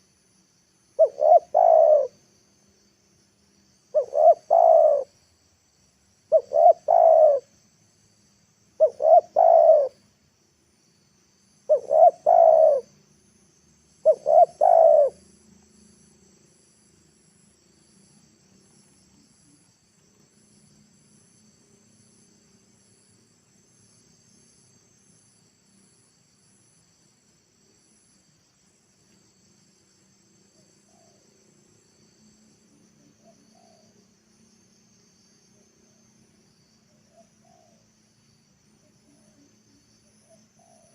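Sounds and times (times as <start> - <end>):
insects chirping: 0.0 - 40.9
dove cooing: 1.0 - 2.2, 3.9 - 5.2, 6.3 - 7.5, 8.8 - 10.0, 11.7 - 12.9, 14.0 - 15.2, 33.2 - 34.0, 37.1 - 37.8, 40.2 - 40.9.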